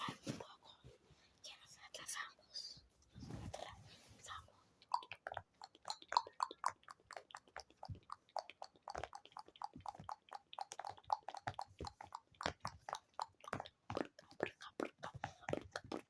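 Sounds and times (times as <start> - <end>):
wet mouth clicks and pops: 4.8 - 16.0.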